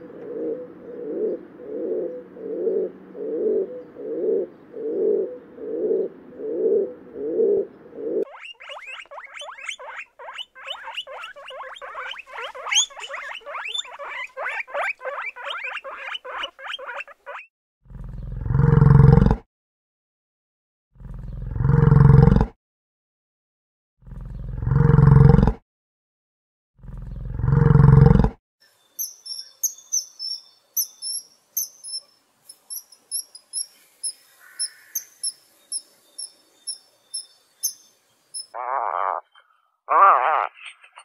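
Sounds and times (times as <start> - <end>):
pigeon cooing: 0.0 - 17.4
guinea pigs squeaking: 8.2 - 17.5.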